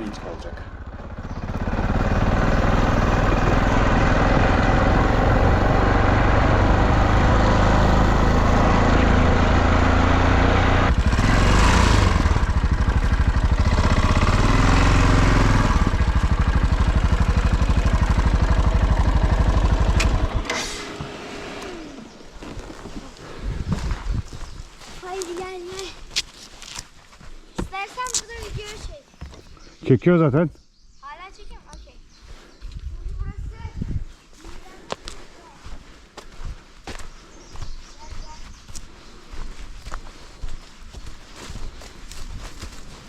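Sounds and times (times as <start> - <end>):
dirt bike engine revving: 0.0 - 23.4.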